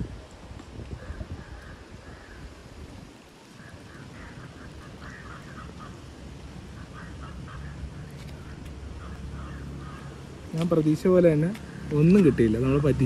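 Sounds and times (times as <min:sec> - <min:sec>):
short bird calls: 0:03.5 - 0:06.1, 0:06.7 - 0:10.2.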